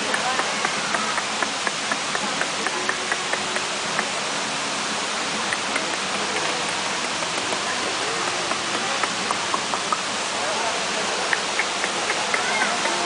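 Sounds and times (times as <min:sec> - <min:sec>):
small ticks: 0:00.0 - 0:04.1
waterfall rushing: 0:00.0 - 0:13.0.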